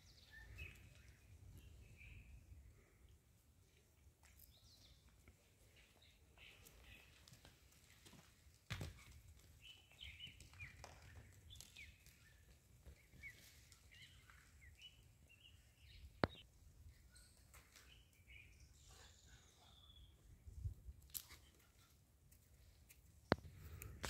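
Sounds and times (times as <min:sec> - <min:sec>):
faint bird chirps: 0:09.7 - 0:20.3.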